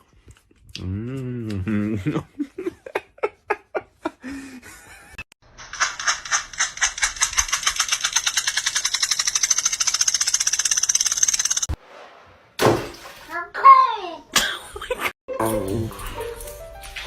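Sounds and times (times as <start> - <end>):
rapid even rattling: 5.6 - 11.8.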